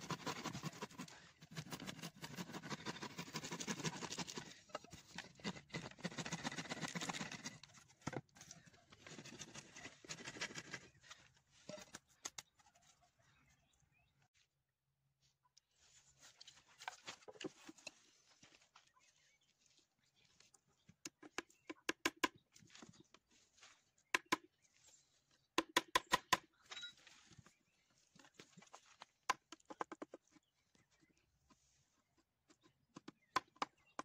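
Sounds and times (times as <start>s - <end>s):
rasping scraping on wood: 0.0s - 7.4s.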